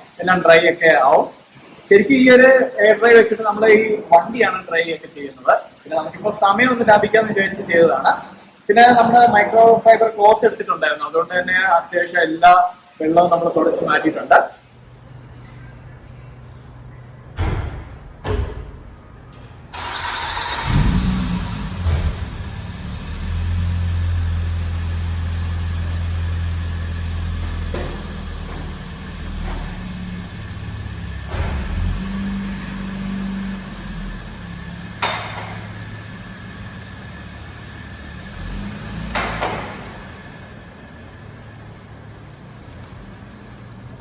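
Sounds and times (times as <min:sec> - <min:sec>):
car engine idling and driving: 0:19.7 - 0:44.0
sharp knocks: 0:31.3 - 0:32.3, 0:35.0 - 0:35.8, 0:39.1 - 0:40.1.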